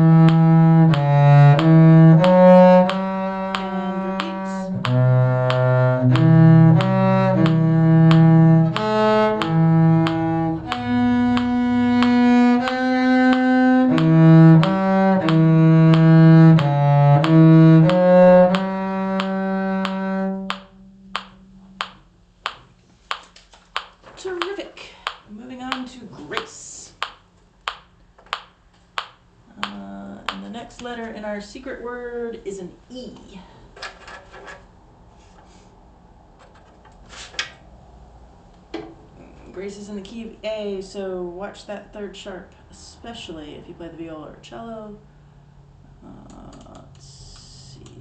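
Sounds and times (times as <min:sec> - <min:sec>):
string ensemble playing: 0:00.0 - 0:21.9.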